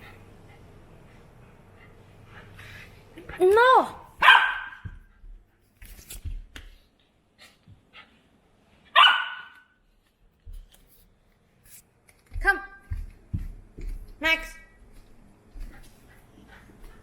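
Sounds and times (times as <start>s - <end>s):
puppy barking: 4.2s - 4.9s, 8.9s - 9.7s
light knocks and scuffles: 10.4s - 11.1s, 12.1s - 17.0s.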